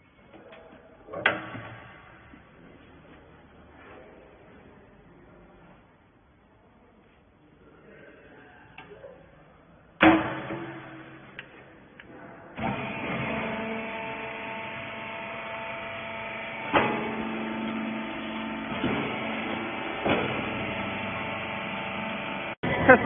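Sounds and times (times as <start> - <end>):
baler machine humming: 12.6 - 23.0.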